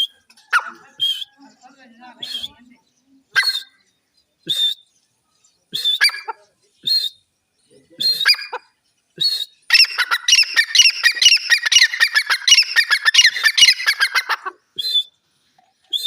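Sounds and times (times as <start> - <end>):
francolin calling: 8.0 - 15.2.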